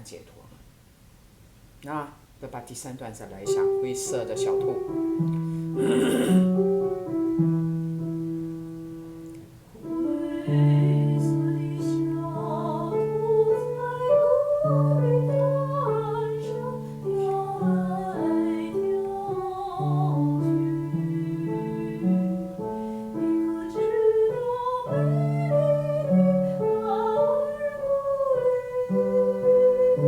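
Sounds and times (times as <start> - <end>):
piano chords: 3.3 - 30.0
woman singing with vibrato: 9.8 - 22.3, 23.2 - 30.0.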